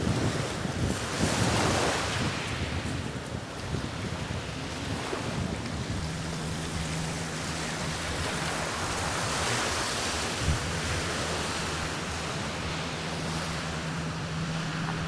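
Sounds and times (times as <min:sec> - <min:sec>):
sea waves washing on shore: 0:00.0 - 0:15.0
steady low hum: 0:04.4 - 0:15.0.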